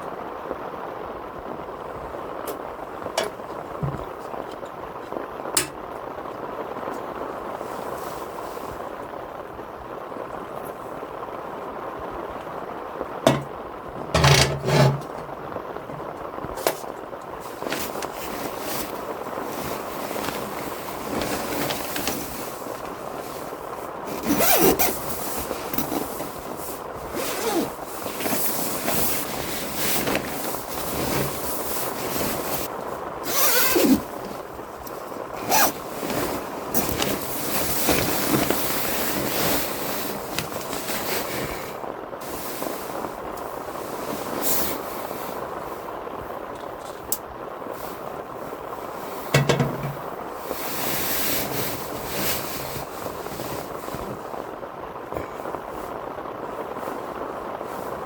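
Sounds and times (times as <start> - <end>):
heavy rain on a tent: 0.0 - 58.0
gear scraping and rustling: 13.3 - 23.5, 24.1 - 32.7, 33.3 - 41.7.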